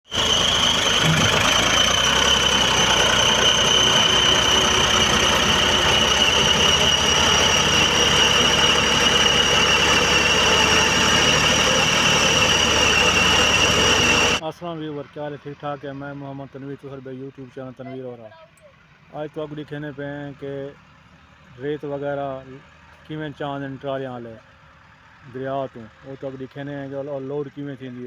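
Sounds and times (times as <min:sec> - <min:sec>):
tractor diesel engine running: 0:00.0 - 0:28.0
high-pitched whine: 0:00.1 - 0:14.4.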